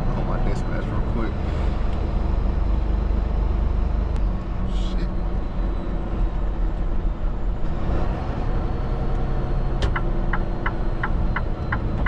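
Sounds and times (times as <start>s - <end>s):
truck engine and road rumble: 0.0s - 12.0s
turn signal ticking: 9.8s - 12.0s.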